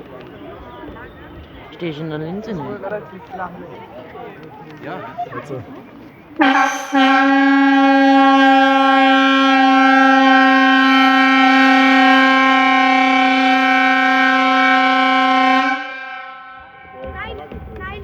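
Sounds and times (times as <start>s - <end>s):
compressed-air horn blast: 6.4s - 16.9s.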